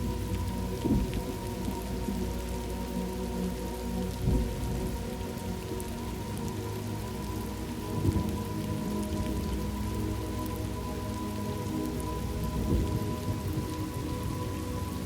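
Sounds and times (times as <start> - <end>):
rain falling: 0.0 - 15.0
thunder rumbling: 0.7 - 1.8, 4.2 - 5.0, 12.4 - 13.7.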